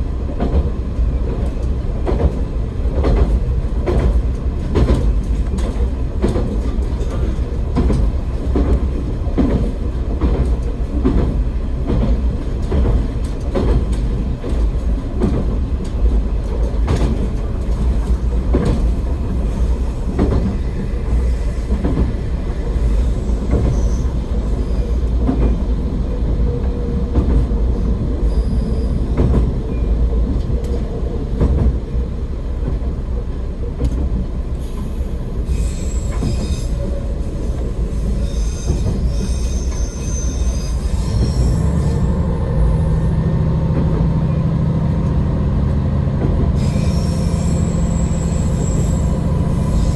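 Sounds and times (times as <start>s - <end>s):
railcar engine rumble: 0.0s - 49.9s
wheels clacking over rail joints: 0.4s - 34.3s.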